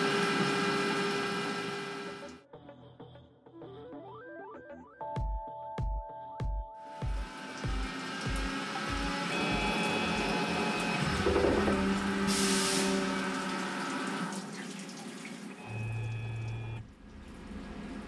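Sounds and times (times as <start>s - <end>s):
coolant spraying in a lathe: 0.0s - 2.3s, 7.1s - 18.0s
background music with beat: 4.6s - 11.9s.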